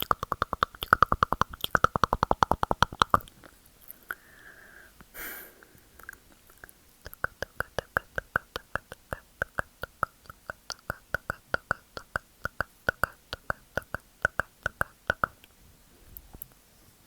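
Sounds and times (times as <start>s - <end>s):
quick tongue clicks: 0.0s - 4.3s, 5.0s - 15.6s
breathy hiss: 3.8s - 6.8s.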